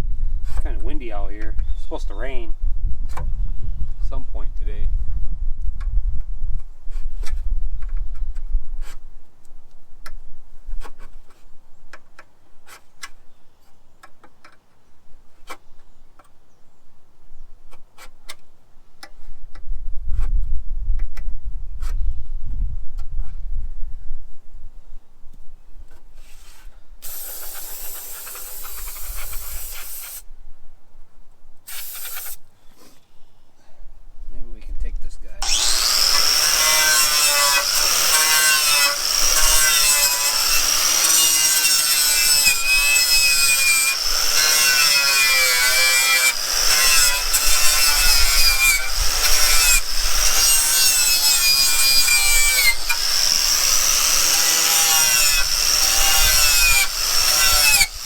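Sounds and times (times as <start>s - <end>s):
wire wheel scouring metal: 35.4s - 58.0s.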